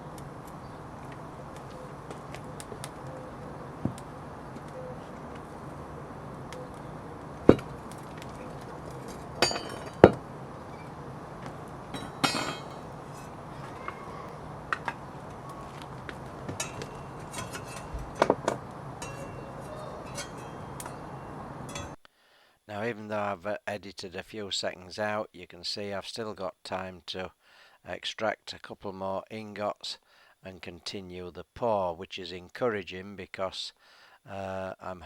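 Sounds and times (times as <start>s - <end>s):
steady low hum: 0.0s - 22.0s
metal tools clinking and knocking: 7.5s - 11.0s, 11.9s - 13.8s, 16.4s - 22.0s.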